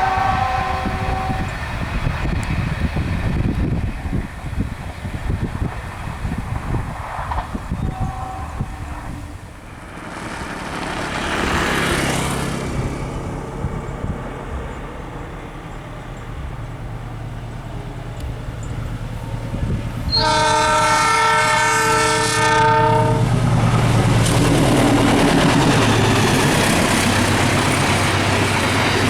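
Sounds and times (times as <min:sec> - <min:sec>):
multi-tone train horn: 0:00.0 - 0:02.0, 0:07.6 - 0:09.4, 0:20.0 - 0:23.7
diesel train engine hum: 0:00.0 - 0:29.0
train rushing noise: 0:00.0 - 0:29.0.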